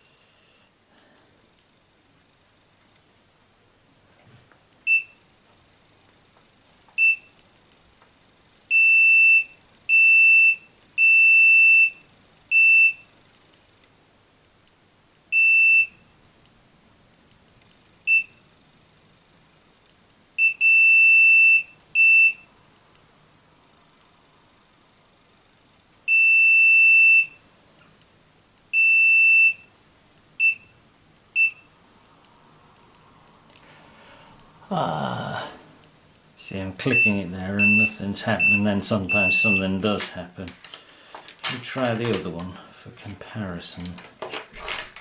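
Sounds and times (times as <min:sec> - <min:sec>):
multimeter continuity beeps: 0:04.8 - 0:05.2, 0:06.9 - 0:07.4, 0:08.7 - 0:13.1, 0:15.3 - 0:16.1, 0:18.0 - 0:18.5, 0:20.4 - 0:22.5, 0:26.1 - 0:27.4, 0:28.7 - 0:29.8, 0:30.4 - 0:31.8, 0:36.8 - 0:39.8.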